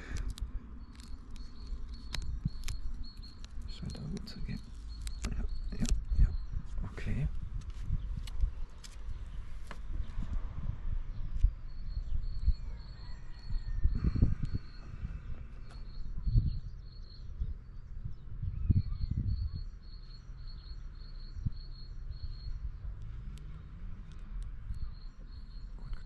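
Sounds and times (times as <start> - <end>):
small bird chirping: 0.2 - 10.3, 11.1 - 26.0
wind buffeting microphone: 1.4 - 19.7.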